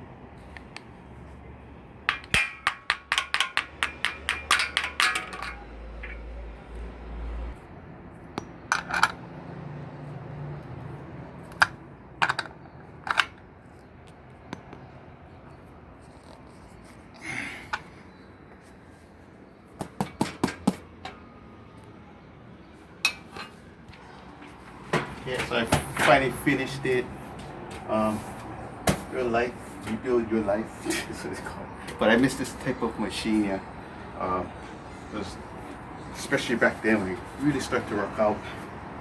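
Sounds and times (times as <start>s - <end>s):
clicks and knocks: 2.1s - 6.3s.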